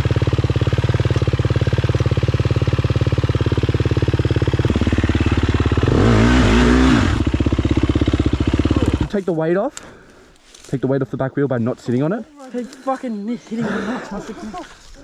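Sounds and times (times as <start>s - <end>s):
dirt bike engine idling and revving: 0.0s - 9.3s.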